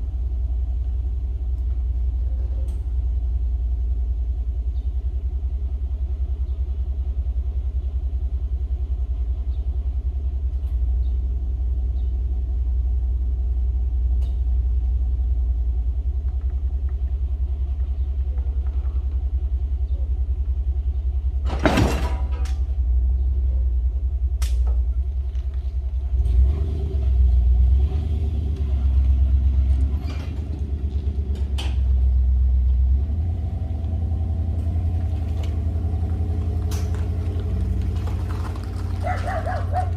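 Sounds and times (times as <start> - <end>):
engine running at low revs: 0.0 - 21.6, 22.3 - 39.9.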